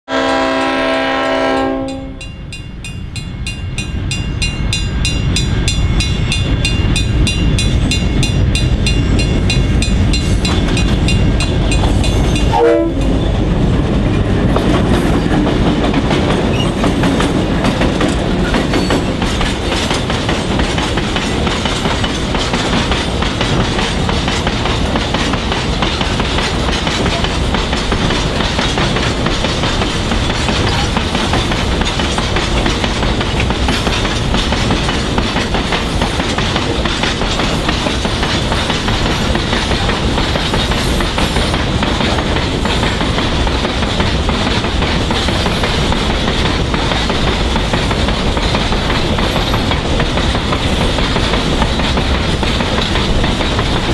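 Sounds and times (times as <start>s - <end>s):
train horn: 0.1s - 2.3s, 12.5s - 13.2s
freight train rumbling past: 0.1s - 53.9s
wheels clacking over rail joints: 4.8s - 53.9s.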